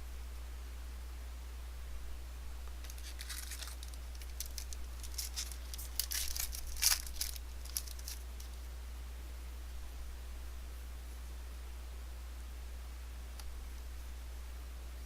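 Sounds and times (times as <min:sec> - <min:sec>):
wrapper tearing and crinkling: 0:02.8 - 0:08.6.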